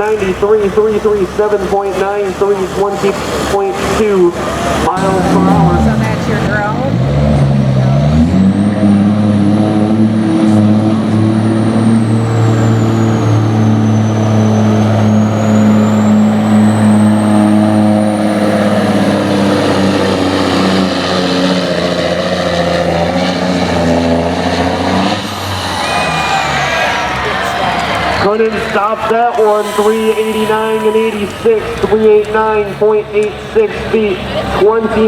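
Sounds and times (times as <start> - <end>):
diesel truck engine revving: 0.0 - 35.0
high wavering whistle: 29.4 - 31.4.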